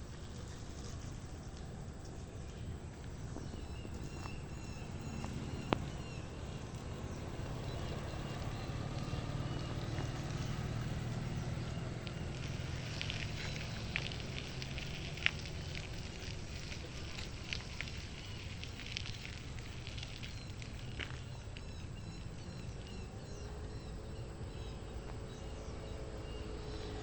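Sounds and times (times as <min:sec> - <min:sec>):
crackles: 0:00.0 - 0:23.2
faint repeated bird notes: 0:00.0 - 0:27.0
steady low rumble: 0:00.0 - 0:27.0.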